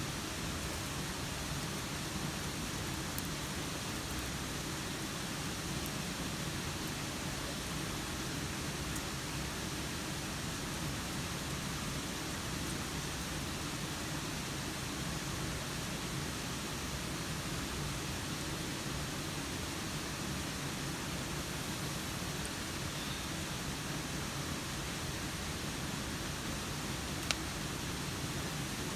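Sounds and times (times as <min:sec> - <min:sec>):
steady rain falling: 0:00.0 - 0:28.9
faint ticks: 0:01.6 - 0:04.4, 0:27.2 - 0:27.5.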